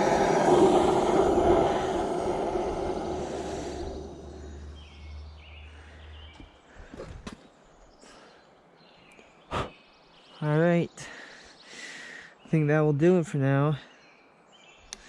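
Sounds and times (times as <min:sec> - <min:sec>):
gas forge burner roaring: 0:00.0 - 0:05.4
faint low hum: 0:00.0 - 0:06.6.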